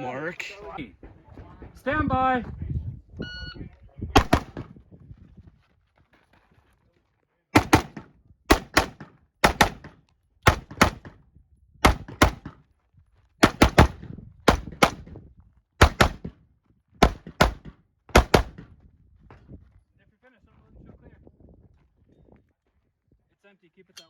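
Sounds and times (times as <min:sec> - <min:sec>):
rifle shots in quick pairs: 0:04.2 - 0:04.7, 0:07.6 - 0:11.1, 0:11.8 - 0:12.6, 0:13.4 - 0:15.1, 0:15.8 - 0:16.3, 0:17.0 - 0:18.7.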